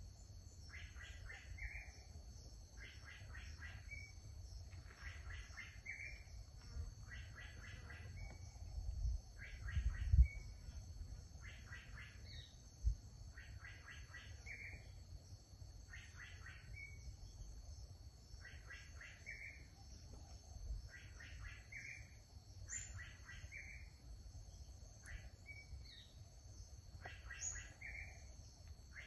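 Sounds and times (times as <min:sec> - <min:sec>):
bird singing a repeated phrase: 0:11.4 - 0:12.6, 0:13.4 - 0:15.2, 0:15.9 - 0:17.5, 0:27.0 - 0:29.0.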